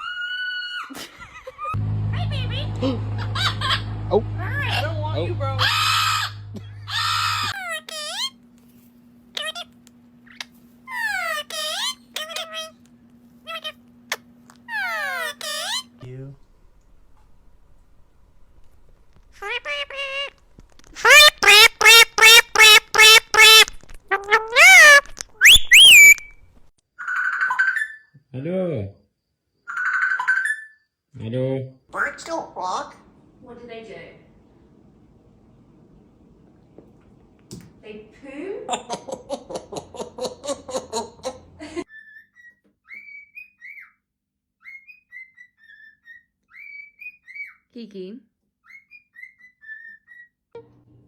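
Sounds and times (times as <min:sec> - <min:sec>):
person laughing and talking: 0:00.9 - 0:05.6, 0:06.5 - 0:07.1, 0:38.3 - 0:41.9
parrot squawking and whistling: 0:04.5 - 0:08.4, 0:10.3 - 0:12.8, 0:13.4 - 0:16.0, 0:21.0 - 0:26.4, 0:29.7 - 0:30.8, 0:41.9 - 0:44.0, 0:44.6 - 0:47.7, 0:48.6 - 0:50.4.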